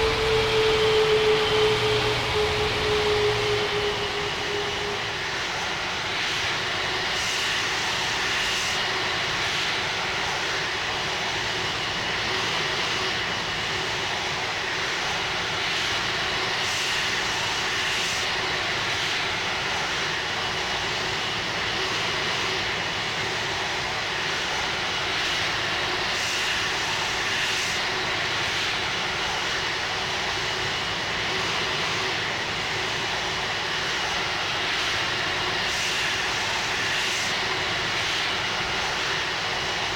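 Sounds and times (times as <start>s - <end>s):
jet engines running: 0.0s - 6.3s.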